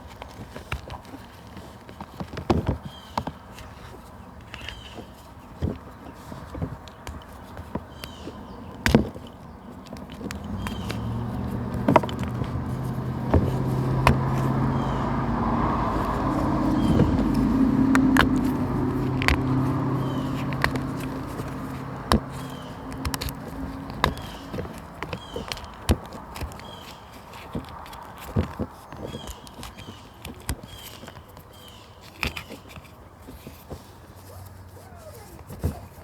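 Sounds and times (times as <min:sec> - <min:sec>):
vehicle engine hum passing: 0:08.1 - 0:30.0.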